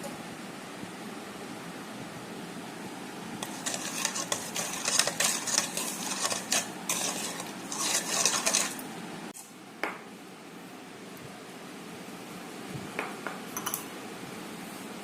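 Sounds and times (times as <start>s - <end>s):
metal utensil scraping cookware: 3.4s - 8.8s.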